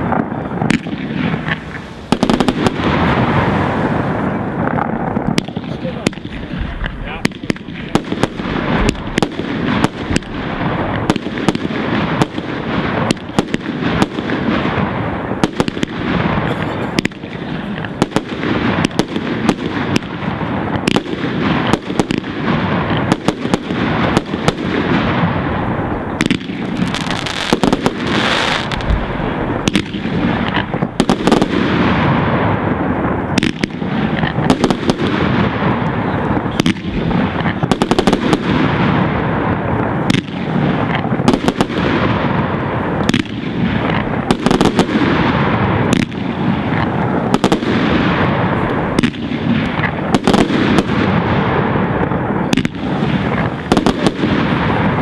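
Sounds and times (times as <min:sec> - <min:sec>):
fireworks crackling: 0:00.0 - 0:55.0
fireworks shell bursts and bangs: 0:26.2 - 0:31.4.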